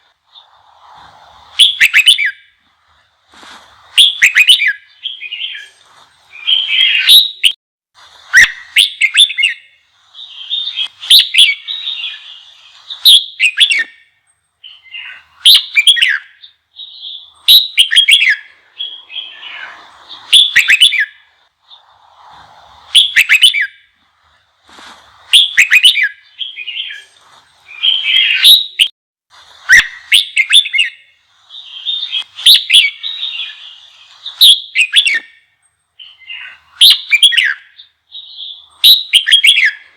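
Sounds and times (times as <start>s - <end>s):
bulbul singing warbled phrases: 3.9s - 7.6s, 8.4s - 14.0s, 14.6s - 21.9s, 25.2s - 28.9s, 29.7s - 35.4s, 36.0s - 39.9s.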